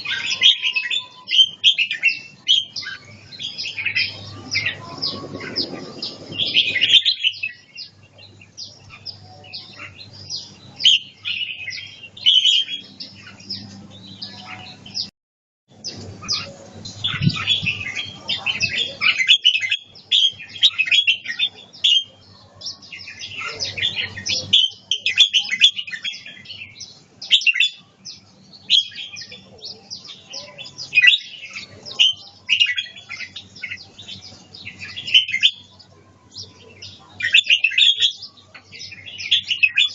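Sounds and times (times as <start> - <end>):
bird singing chirping phrases: 0.0 - 15.1, 15.7 - 39.9.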